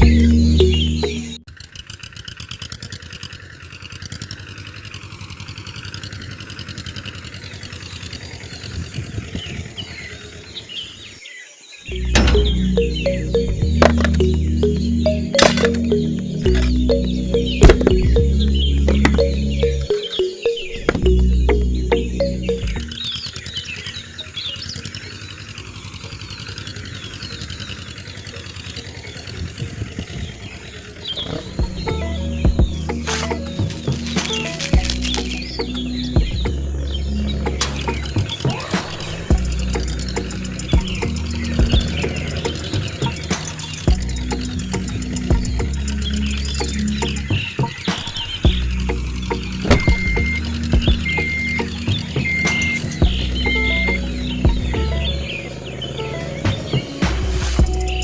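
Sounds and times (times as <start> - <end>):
small engine chugging: 0.0 - 58.0
small motor rattling: 1.4 - 11.3, 22.6 - 31.9, 36.8 - 56.3.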